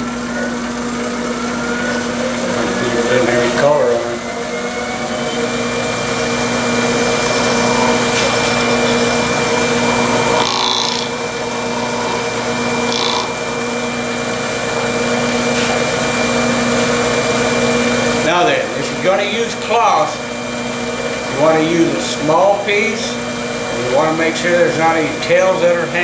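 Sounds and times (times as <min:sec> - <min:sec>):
wood lathe motor whining: 0:00.0 - 0:26.0
hissing rub on spinning wood: 0:05.6 - 0:18.3.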